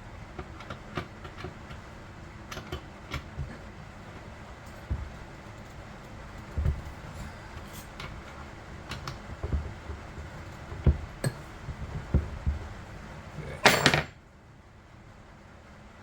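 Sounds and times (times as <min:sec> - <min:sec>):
metal tools rattling: 0:13.2 - 0:14.1
small metal tools clinking: 0:13.4 - 0:14.1.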